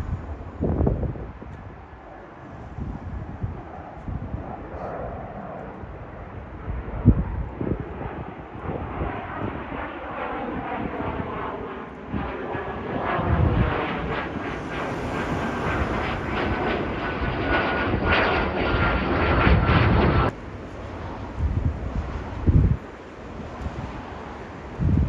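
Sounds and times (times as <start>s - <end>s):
jet engines roaring: 0.0s - 25.0s
high engine whine: 11.9s - 22.8s.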